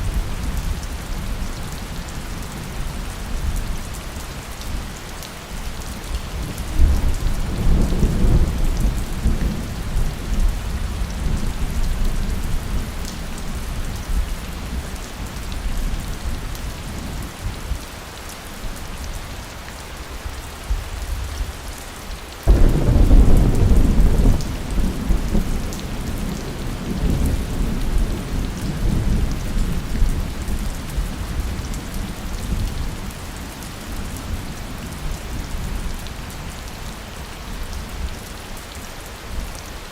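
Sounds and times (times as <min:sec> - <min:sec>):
heavy rain: 0:00.0 - 0:39.9
thunder rolling: 0:22.5 - 0:26.1.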